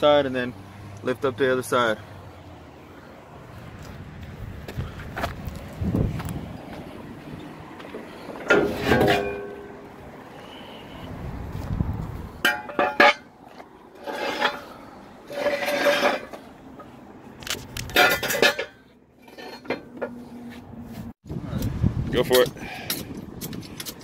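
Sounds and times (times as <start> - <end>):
metal clanks and clinks: 8.2 - 9.9, 12.4 - 20.2.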